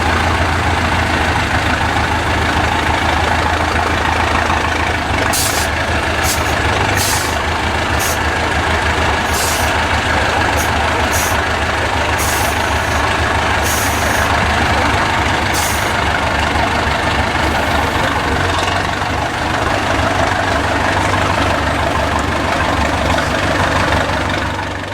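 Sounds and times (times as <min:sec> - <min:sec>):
truck engine running: 0:00.0 - 0:24.9
hissing bursts: 0:05.3 - 0:08.3, 0:09.2 - 0:09.8, 0:12.1 - 0:14.7, 0:15.4 - 0:16.0.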